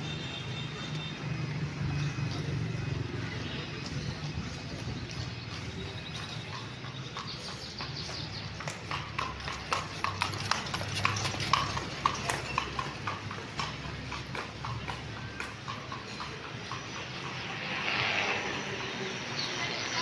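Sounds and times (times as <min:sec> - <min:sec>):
horse hooves clopping: 0:00.0 - 0:19.4.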